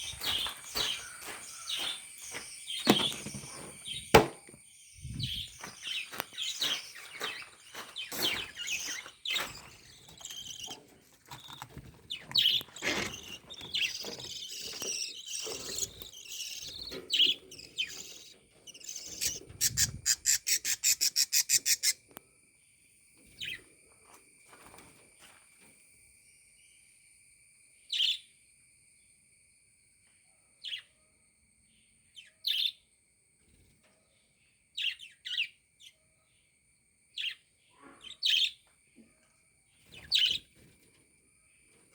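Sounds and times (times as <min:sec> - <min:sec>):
budgerigars chattering and chirping: 0:00.0 - 0:03.4, 0:05.2 - 0:22.0, 0:38.0 - 0:38.6, 0:40.0 - 0:40.4.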